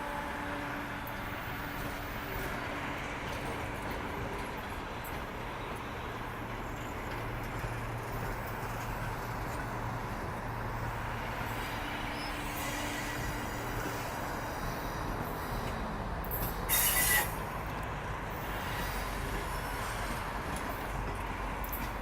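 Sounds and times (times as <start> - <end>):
train cars rumbling on track: 0.0 - 22.0
train low drone: 0.0 - 22.0.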